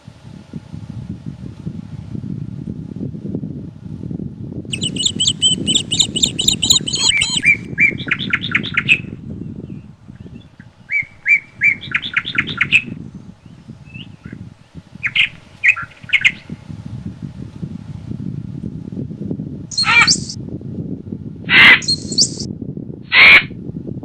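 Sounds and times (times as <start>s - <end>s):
low rumble of wind: 0.0s - 24.0s
songbird chirping: 4.7s - 9.0s, 9.6s - 14.4s, 19.7s - 20.4s, 21.8s - 22.5s.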